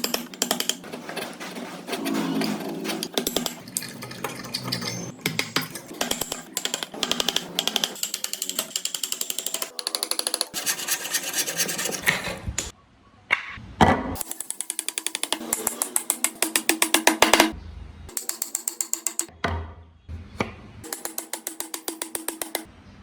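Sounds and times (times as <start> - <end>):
hand tool scraping wood: 0.4 - 3.6, 10.5 - 12.7.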